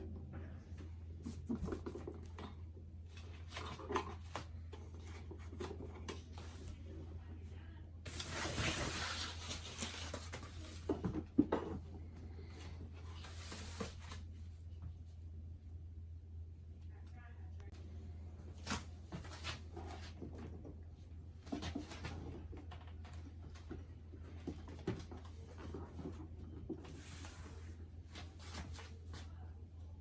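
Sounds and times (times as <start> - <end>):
steady low hum: 0.0 - 30.0
packaging rustling: 8.1 - 10.8.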